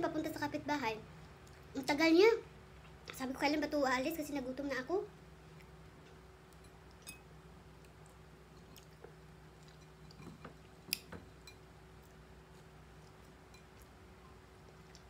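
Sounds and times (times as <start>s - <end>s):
faint chewing: 1.2s - 1.8s, 7.8s - 15.0s.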